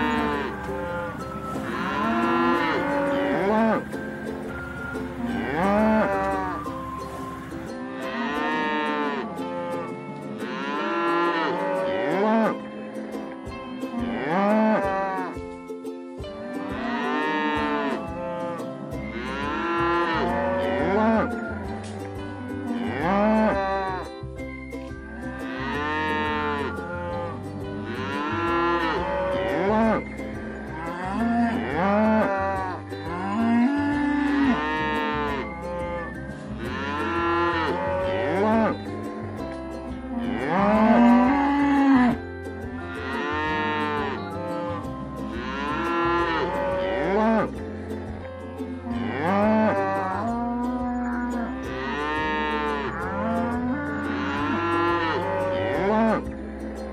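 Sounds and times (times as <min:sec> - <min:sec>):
cattle mooing: 0:00.0 - 0:03.9, 0:05.2 - 0:06.6, 0:08.0 - 0:12.6, 0:22.7 - 0:24.0, 0:27.9 - 0:30.1, 0:30.8 - 0:38.8, 0:40.2 - 0:42.2, 0:45.4 - 0:47.6, 0:48.9 - 0:56.2.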